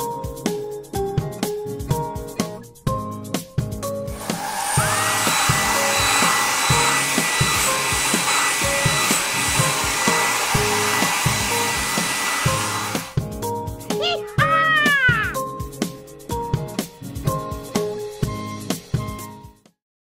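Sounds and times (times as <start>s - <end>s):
children's background music: 0.0s - 19.8s
hair dryer blowing: 4.0s - 13.3s.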